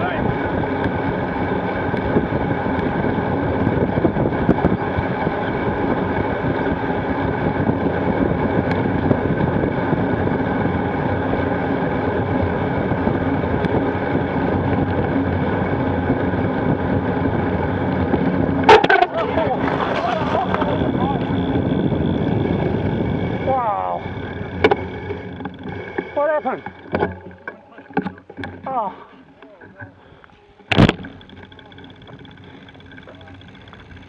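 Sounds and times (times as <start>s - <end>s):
wind rush on microphone: 0.0s - 25.8s
bike tyres rolling on gravel: 0.0s - 34.0s.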